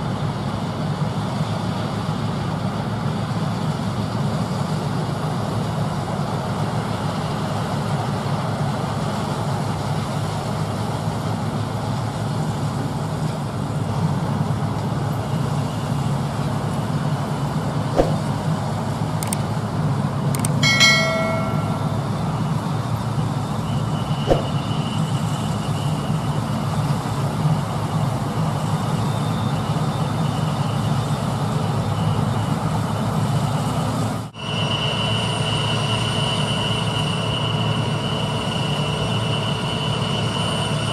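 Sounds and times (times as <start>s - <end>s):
brief pitched tone: 20.4s - 22.5s.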